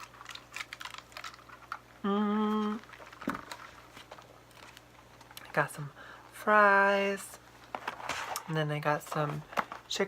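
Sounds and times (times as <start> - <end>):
packaging rustling and clicking: 0.0 - 1.9, 2.8 - 5.5, 7.6 - 10.0
short voiced hum: 2.0 - 2.8.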